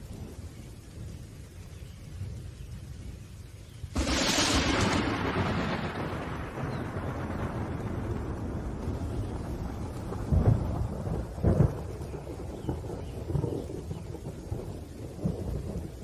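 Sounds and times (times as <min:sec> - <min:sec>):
steady rain: 0:00.0 - 0:16.0
thunder rolling: 0:03.9 - 0:16.0.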